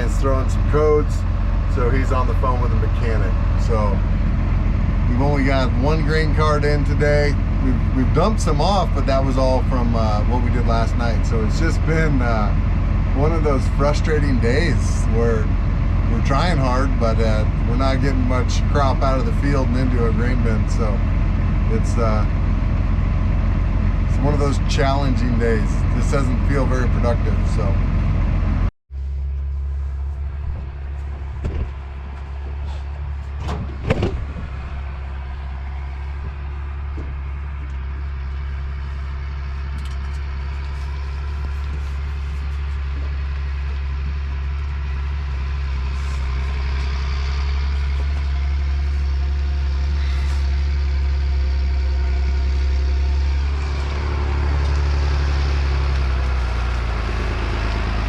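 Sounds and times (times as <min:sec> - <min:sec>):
vehicle engine humming: 0:00.0 - 0:58.0
knocks: 0:31.2 - 0:31.8, 0:33.4 - 0:34.6.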